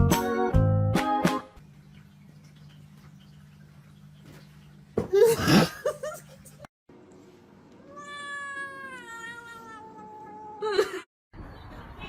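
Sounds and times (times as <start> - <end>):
cat meowing: 7.8 - 10.6
cat yowling: 7.8 - 10.6.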